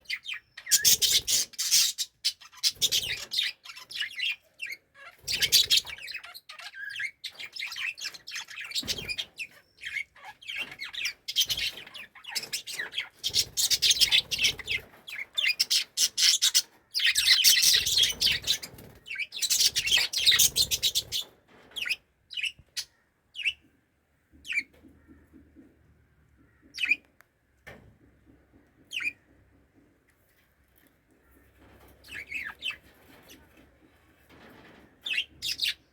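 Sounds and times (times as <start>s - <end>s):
budgerigars chattering and chirping: 0.0s - 23.6s, 28.9s - 29.2s, 32.0s - 33.5s.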